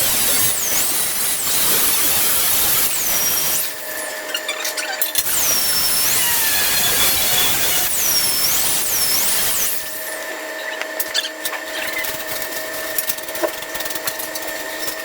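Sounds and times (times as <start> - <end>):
angle grinder grinding metal: 0.0 - 10.4.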